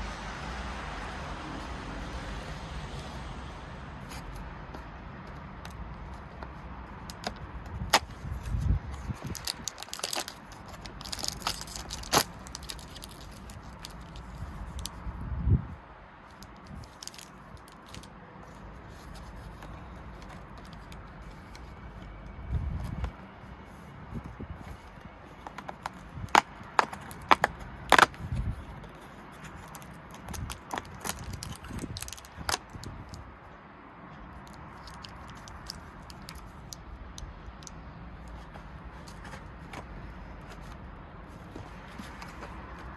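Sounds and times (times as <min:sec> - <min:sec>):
packaging crinkling and rustling: 0:06.1 - 0:15.0, 0:16.3 - 0:23.2, 0:24.2 - 0:33.3, 0:34.4 - 0:36.8, 0:37.5 - 0:42.9
sharp plastic clicks: 0:25.5 - 0:28.2.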